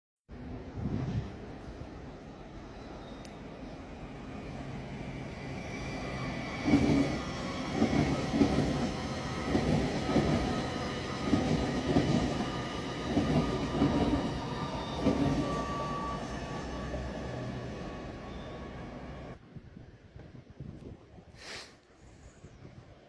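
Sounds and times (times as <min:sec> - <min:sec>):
train motor whine: 0:05.2 - 0:19.4.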